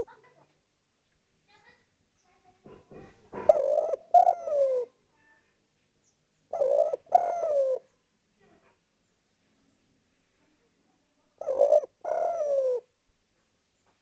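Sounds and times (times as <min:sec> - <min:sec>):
dove cooing: 0:02.9 - 0:05.0, 0:06.5 - 0:07.9, 0:11.4 - 0:12.9.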